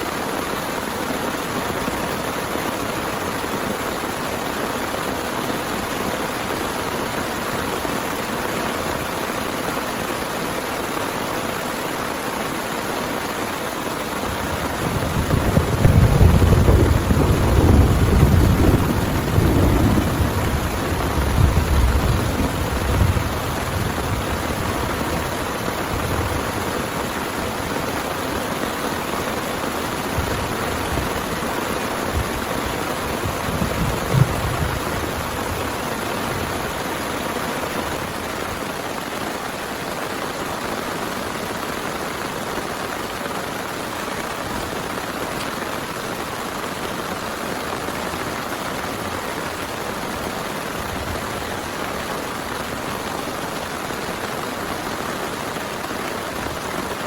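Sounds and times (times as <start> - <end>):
heavy rain falling: 0.0 - 57.0
thunder rumbling: 14.2 - 28.1, 29.9 - 36.9.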